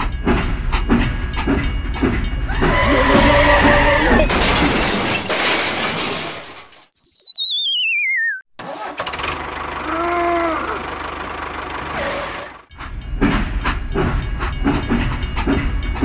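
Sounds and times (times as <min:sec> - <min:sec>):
brief arched tone: 0:07.0 - 0:08.5
engine chugging: 0:08.7 - 0:16.0.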